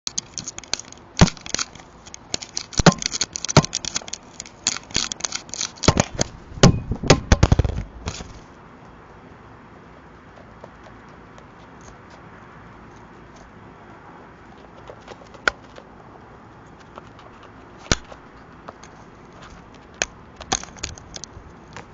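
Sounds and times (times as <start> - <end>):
crow pecking at camera: 0.1 - 6.4, 10.0 - 13.6, 14.3 - 21.9.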